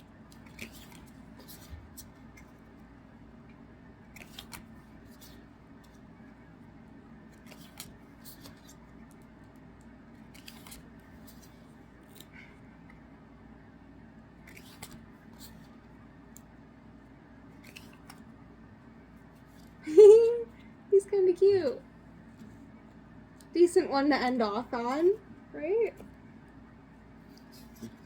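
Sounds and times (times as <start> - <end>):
low room hum: 0.0 - 28.0
cards clicking and rustling: 0.2 - 2.7, 4.1 - 6.1, 7.2 - 12.4, 14.4 - 16.6, 17.6 - 18.4.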